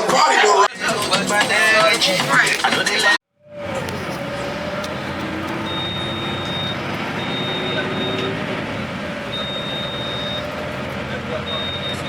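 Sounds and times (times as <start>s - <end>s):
vehicle running noise: 0.7s - 12.0s
high-pitched electronic beep: 4.6s - 8.4s, 9.3s - 10.5s, 11.5s - 12.0s.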